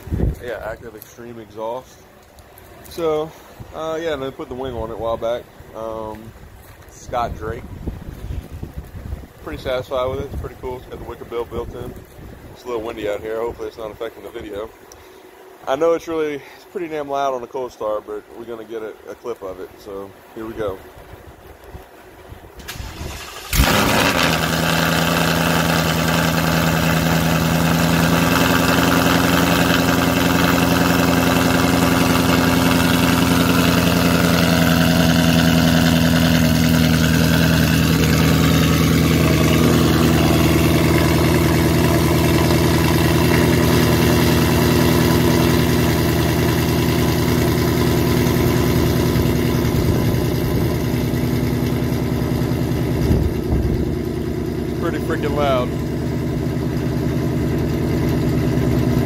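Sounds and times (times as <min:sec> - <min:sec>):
car engine fast idle: 0:22.6 - 0:59.0.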